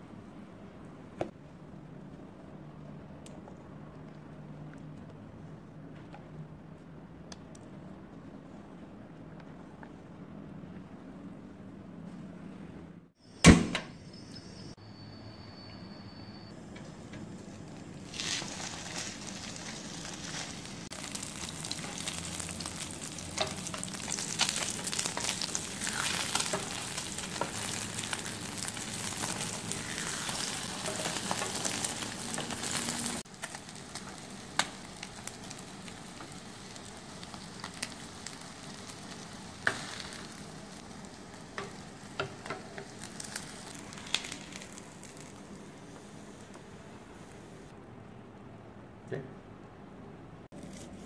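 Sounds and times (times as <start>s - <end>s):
omelette sizzling in a pan: 17.4s - 45.9s.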